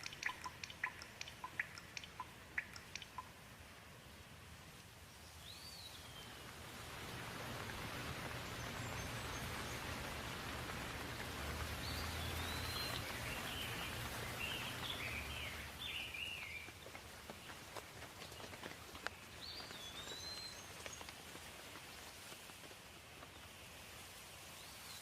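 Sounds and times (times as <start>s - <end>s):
bird chirping: 0.0s - 3.4s, 5.2s - 6.5s, 11.6s - 21.4s
rain falling: 0.0s - 25.0s.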